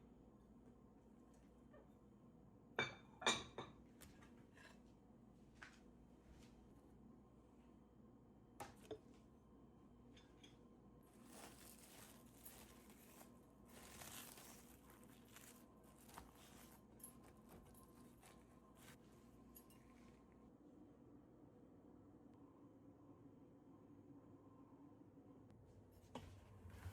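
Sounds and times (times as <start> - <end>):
soft rustling: 11.0 - 20.4.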